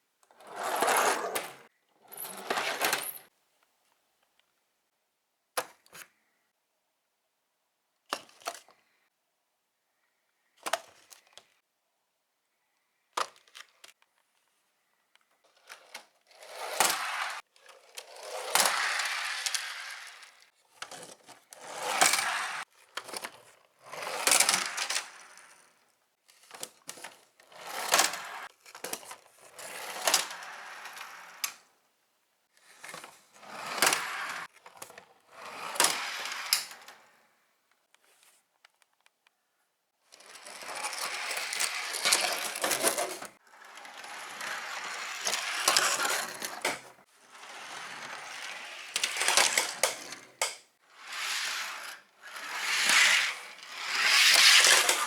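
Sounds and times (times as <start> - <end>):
toy cars rattling down plastic track: 0.4 - 3.3, 15.5 - 25.8, 26.4 - 31.7, 32.6 - 37.1, 40.1 - 55.0.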